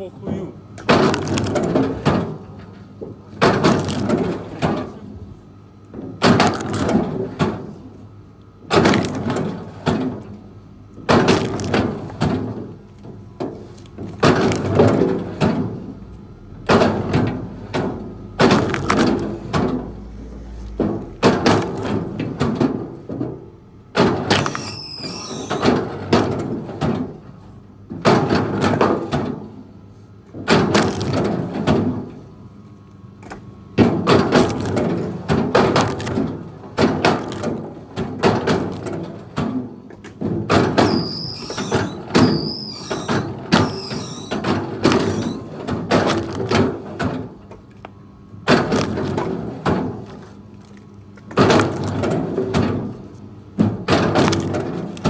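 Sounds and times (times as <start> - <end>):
wavering high squeal: 24.4 - 25.6, 40.8 - 44.4.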